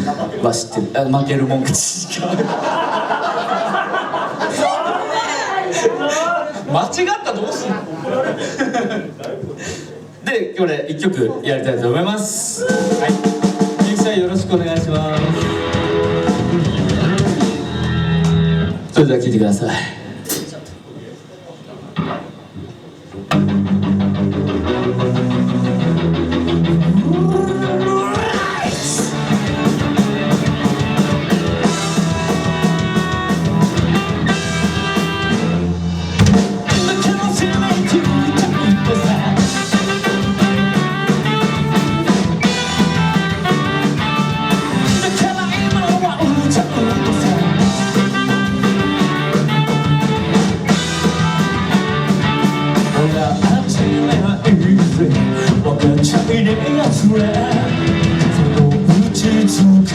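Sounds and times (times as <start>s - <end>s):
drum kit: 12.6s - 18.9s, 22.0s - 59.9s
rock band playing: 12.6s - 18.9s, 23.2s - 59.9s
electric guitar: 14.8s - 18.9s, 22.0s - 59.9s
person singing: 36.6s - 40.3s, 43.5s - 48.4s.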